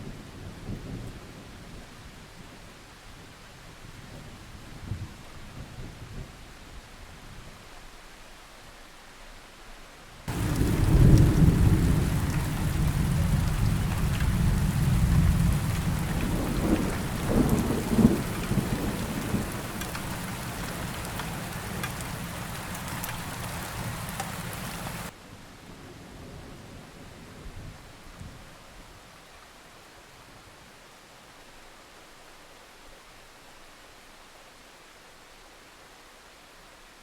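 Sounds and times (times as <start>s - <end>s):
thunder rumbling: 10.3s - 25.1s
heavy rain: 10.3s - 28.8s.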